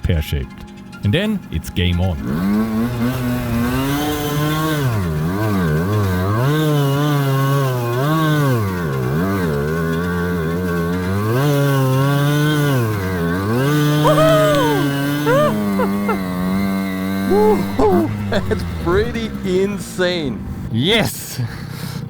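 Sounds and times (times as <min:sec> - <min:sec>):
two-stroke motorcycle engine revving: 0:02.2 - 0:14.0.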